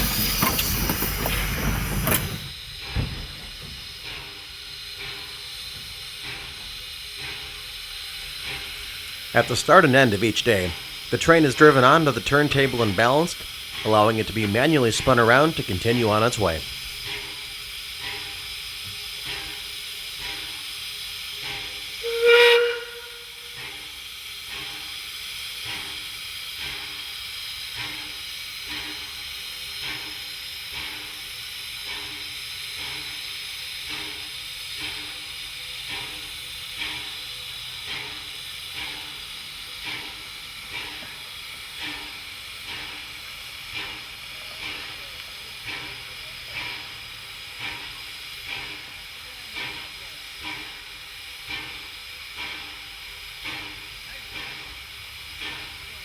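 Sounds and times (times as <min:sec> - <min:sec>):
steam locomotive hissing: 0:00.0 - 0:56.0
steam whistle blast: 0:21.9 - 0:23.9.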